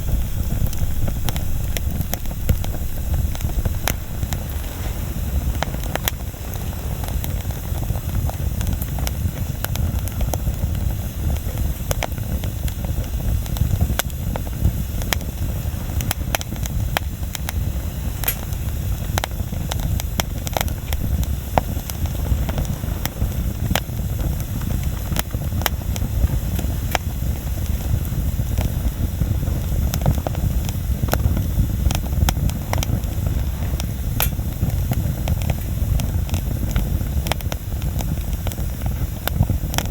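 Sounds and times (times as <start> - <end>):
low rumble: 0.0 - 9.6
bonfire crackling and popping: 0.0 - 39.9.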